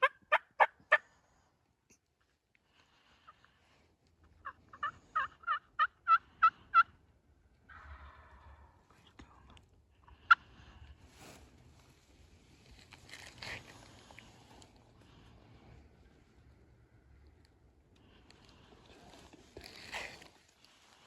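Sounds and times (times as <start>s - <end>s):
turkey yelps: 0.0s - 1.0s, 4.4s - 6.9s, 7.7s - 8.7s.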